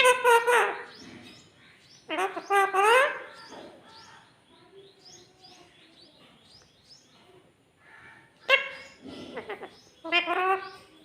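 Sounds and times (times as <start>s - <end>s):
parrot squawking: 0.0s - 1.0s, 2.1s - 3.5s, 8.4s - 10.9s.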